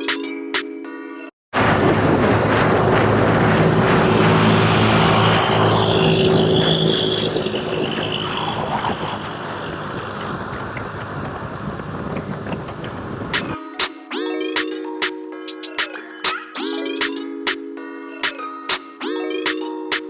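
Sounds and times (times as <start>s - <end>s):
wind noise: 1.6s - 13.6s.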